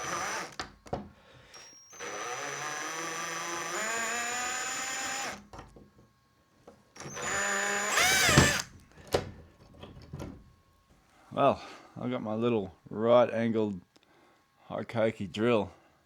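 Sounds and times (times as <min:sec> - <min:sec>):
power drill whining in short bursts: 0:00.0 - 0:00.6, 0:01.4 - 0:05.4, 0:07.0 - 0:08.7.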